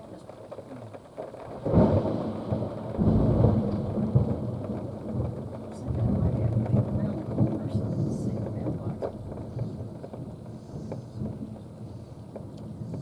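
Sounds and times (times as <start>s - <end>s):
steady rain: 0.0s - 13.0s
thunder clap and rumble: 0.0s - 13.0s.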